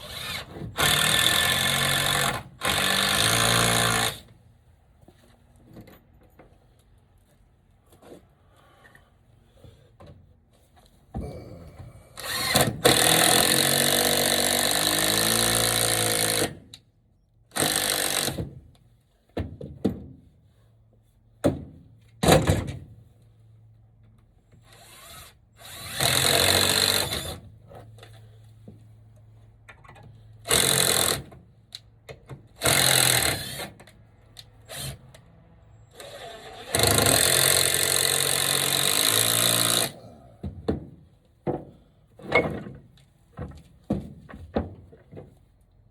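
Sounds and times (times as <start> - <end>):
power drill running: 24.8 - 27.4, 35.9 - 39.9.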